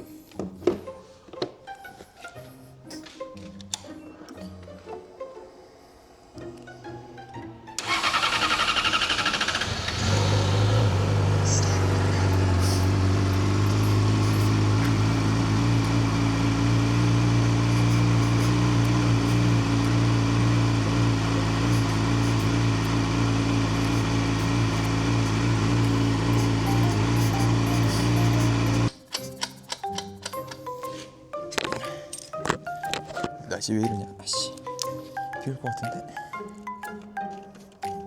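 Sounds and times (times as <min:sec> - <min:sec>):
motorcycle engine idling: 0:07.8 - 0:29.0
motorcycle engine cranking: 0:07.8 - 0:30.7.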